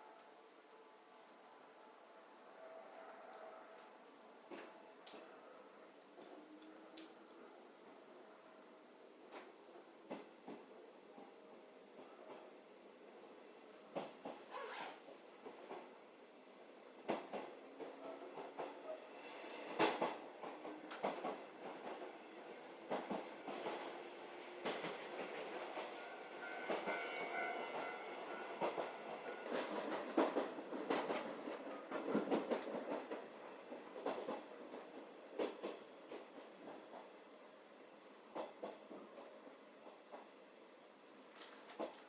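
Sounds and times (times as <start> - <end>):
train ride rumble: 0.0 - 42.0.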